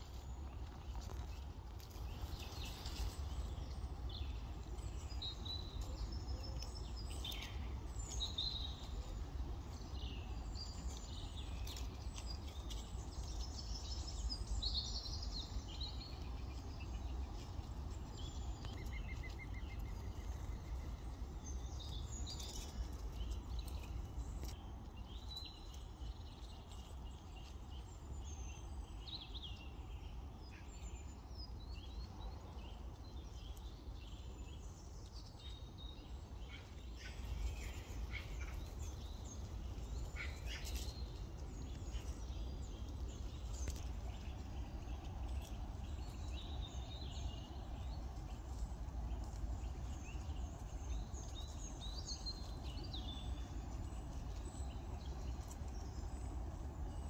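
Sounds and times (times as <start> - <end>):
low steady rumble: 0.0 - 57.0
songbirds chirping: 0.0 - 57.0.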